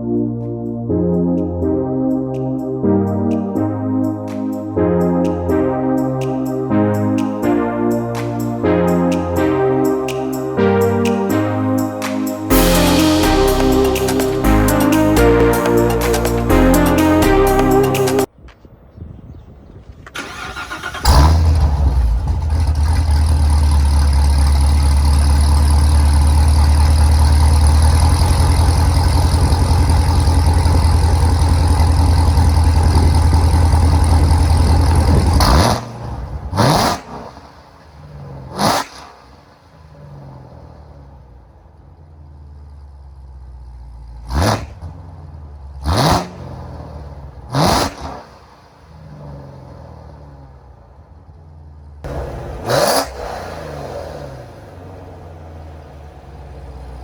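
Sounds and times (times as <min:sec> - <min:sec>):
car engine idling and revving: 0:20.2 - 0:57.0.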